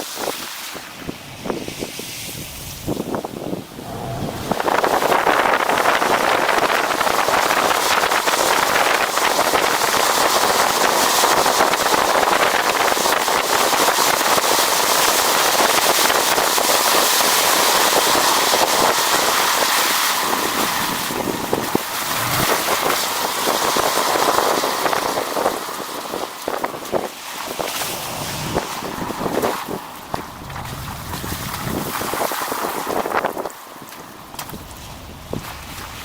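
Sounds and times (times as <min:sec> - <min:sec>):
wind rushing over microphone: 0:01.0 - 0:10.4, 0:17.4 - 0:36.0
vehicle road noise: 0:01.1 - 0:07.1, 0:20.7 - 0:36.0.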